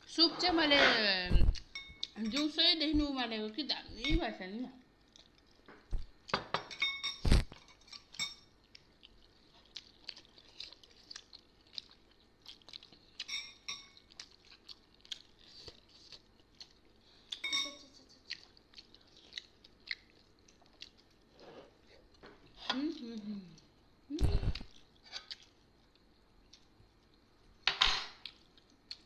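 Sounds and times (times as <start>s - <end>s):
people chewing: 5.0s - 6.4s, 7.3s - 27.5s
spoons clinking on porcelain bowls: 6.5s - 8.5s, 13.3s - 14.0s, 17.4s - 18.0s.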